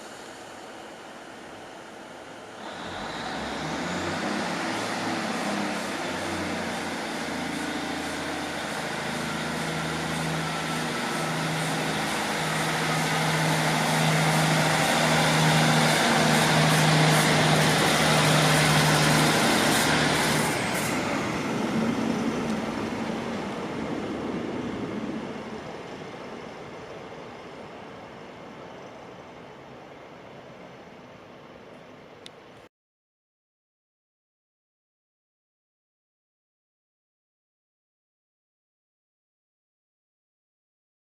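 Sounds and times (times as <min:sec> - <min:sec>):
train passing: 0:00.0 - 0:32.6.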